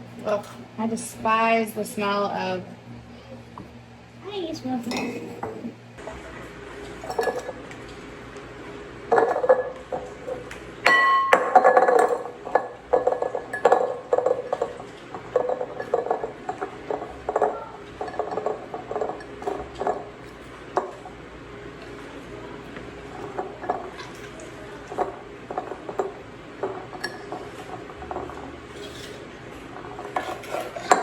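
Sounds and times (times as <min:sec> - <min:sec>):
glass jars clinking: 0:04.9 - 0:05.6, 0:07.0 - 0:07.8, 0:09.1 - 0:21.0, 0:24.9 - 0:29.2
ringing glass strike: 0:10.8 - 0:11.7.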